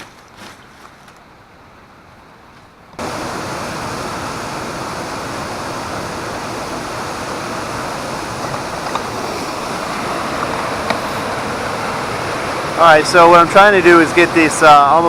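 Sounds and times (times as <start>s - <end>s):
waterfall rushing water: 3.0s - 15.0s.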